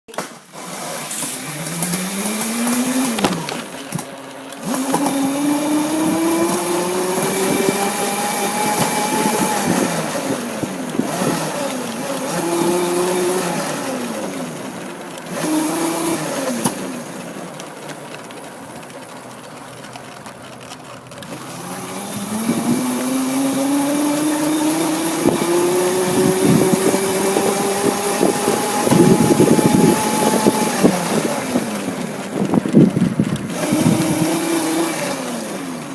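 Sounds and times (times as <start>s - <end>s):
motorcycle engine accelerating: 0.1s - 35.9s
motorcycle throttle blips: 21.2s - 35.6s.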